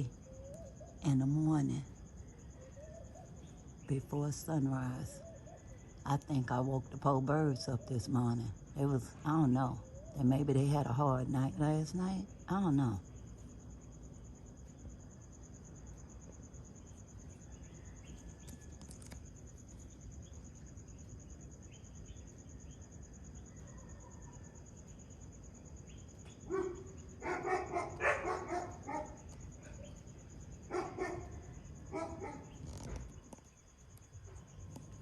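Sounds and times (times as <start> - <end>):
faint bird chirps: 0.0 - 35.0
insect chirring: 0.0 - 35.0
dog barking: 26.5 - 29.9, 30.7 - 32.5.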